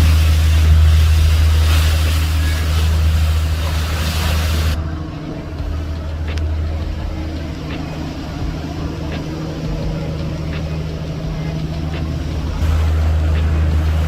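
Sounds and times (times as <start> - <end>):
ferry engine droning: 0.0 - 14.0
faint clicks: 5.9 - 12.6.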